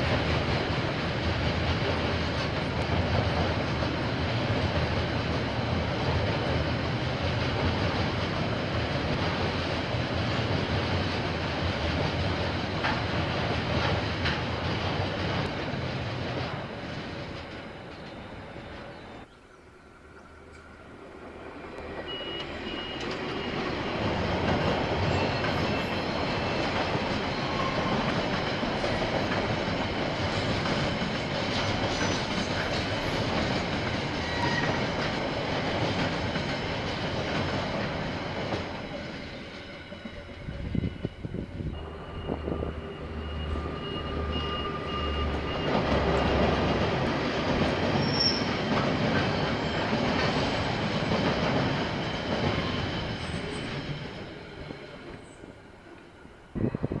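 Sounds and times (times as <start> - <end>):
train rolling on rails: 0.0 - 57.0
faint high wheel squeal: 21.8 - 28.1, 40.0 - 46.4, 48.0 - 48.6, 52.0 - 55.6.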